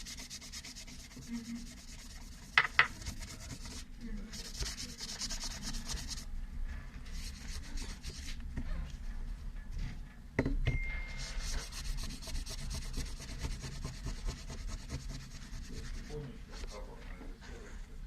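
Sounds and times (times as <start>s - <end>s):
hand rubbing strokes: 0.0s - 6.3s, 11.1s - 16.9s.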